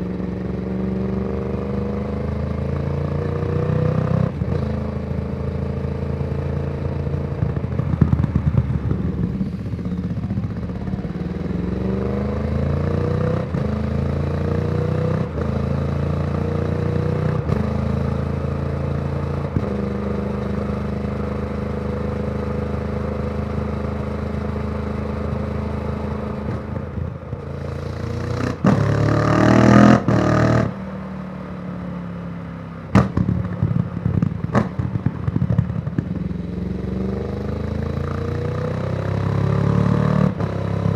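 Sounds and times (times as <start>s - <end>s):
motorcycle revving hard: 0.0s - 7.2s, 10.4s - 21.1s, 27.5s - 30.9s, 36.2s - 40.9s
motorcycle engine: 0.0s - 40.9s.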